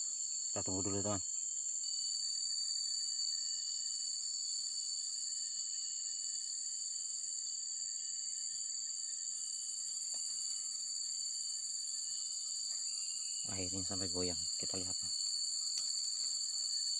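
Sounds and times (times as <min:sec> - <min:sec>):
insects buzzing shrilly: 0:00.0 - 0:16.9.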